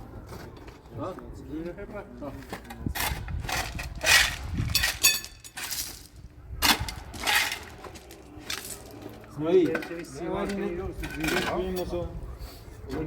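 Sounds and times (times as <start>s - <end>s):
hard objects clattering: 2.4s - 11.9s.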